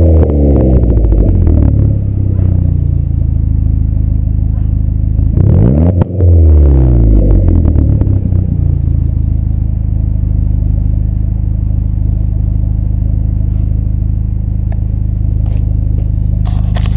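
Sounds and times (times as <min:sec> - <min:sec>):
car engine revving and idling: 0:00.0 - 0:16.9.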